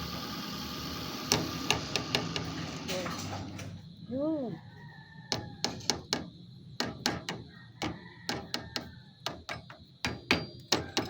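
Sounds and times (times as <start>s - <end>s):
hand tool knocking on hard part: 5.3s - 11.0s.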